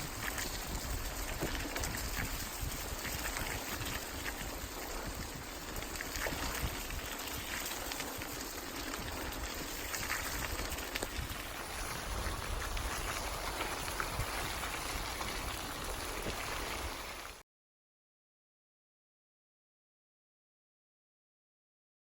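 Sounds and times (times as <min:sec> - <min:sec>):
steady rain: 0:00.0 - 0:17.4.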